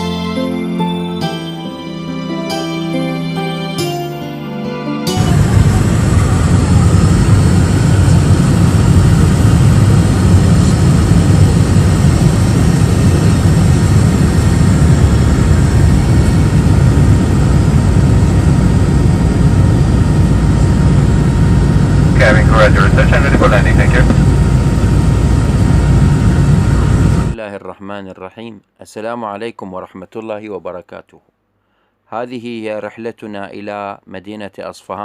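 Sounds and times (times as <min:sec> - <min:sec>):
airliner cabin rumble in flight: 0:05.2 - 0:27.4.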